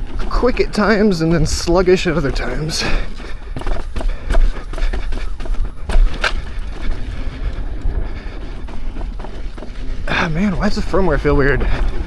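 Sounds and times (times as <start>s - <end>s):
wheel and suspension knocks: 1.6s - 7.3s, 8.5s - 9.8s.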